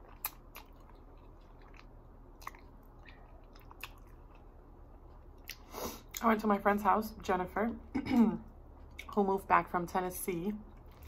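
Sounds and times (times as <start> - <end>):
person chewing food: 0.0 - 6.2, 10.7 - 11.0.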